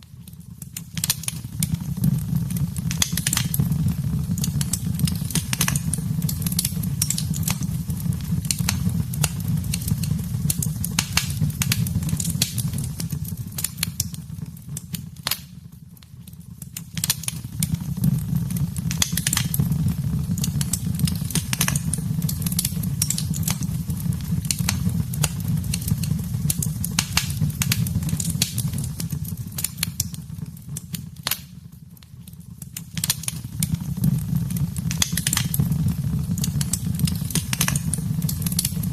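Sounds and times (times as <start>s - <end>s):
fire crackling and popping: 0.0s - 38.9s
low rumble of flame: 0.0s - 38.9s.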